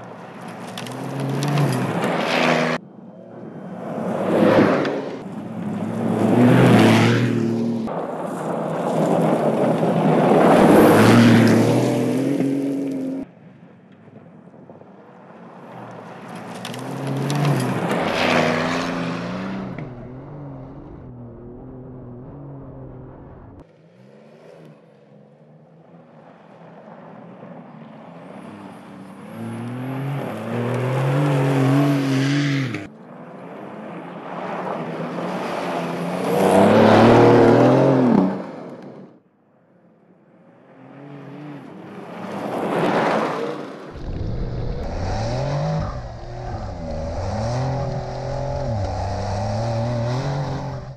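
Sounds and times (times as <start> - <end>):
car engine revving hard: 44.0 - 50.9.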